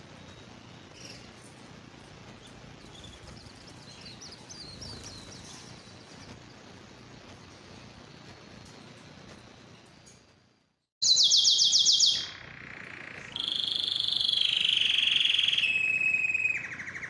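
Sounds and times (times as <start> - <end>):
steady background hiss: 0.0 - 17.0
canary chirping: 0.2 - 6.6, 11.0 - 17.0.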